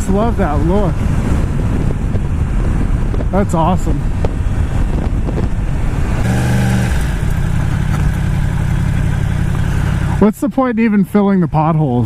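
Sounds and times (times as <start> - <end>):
wind rush on microphone: 0.0 - 10.2
motorcycle engine running: 4.1 - 10.4.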